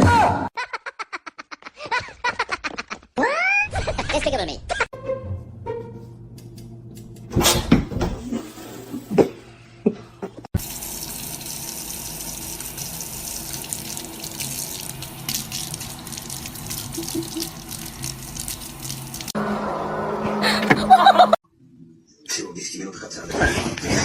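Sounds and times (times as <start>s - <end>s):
running water from a tap: 10.6s - 19.4s.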